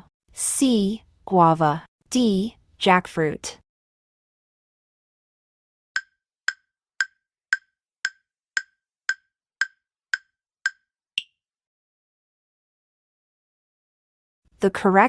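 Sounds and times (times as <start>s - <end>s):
sharp wood-block ticks: 6.0s - 11.4s.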